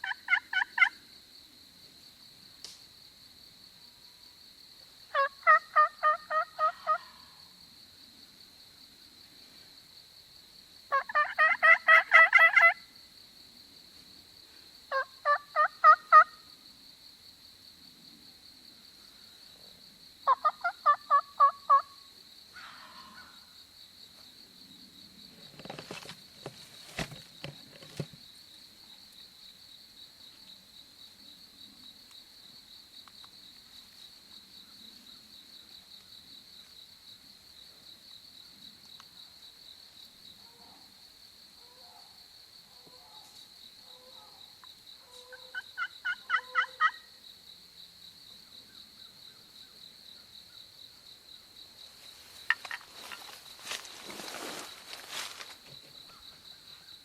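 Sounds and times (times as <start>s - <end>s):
wild turkey calls: 0.0s - 1.0s, 5.1s - 7.4s, 10.9s - 12.8s, 14.9s - 16.4s, 20.2s - 23.5s, 43.9s - 47.1s
high drone of insects: 0.0s - 57.0s.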